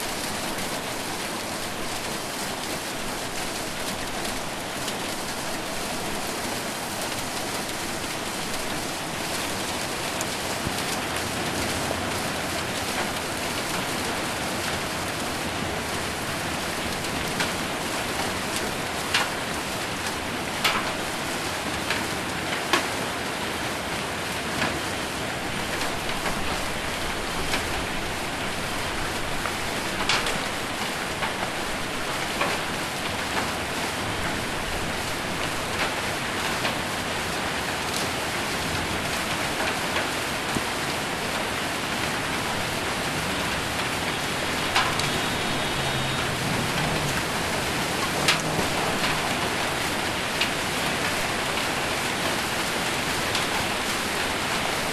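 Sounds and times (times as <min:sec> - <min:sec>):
hailstones knocking on a roof: 0:00.0 - 0:23.0, 0:24.4 - 0:54.9
heavy rain on a roof: 0:00.0 - 0:54.9.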